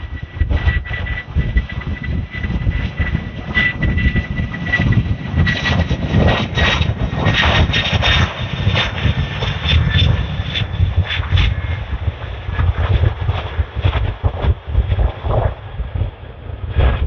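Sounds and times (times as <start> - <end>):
jet engines at takeoff power: 0.0 - 17.0.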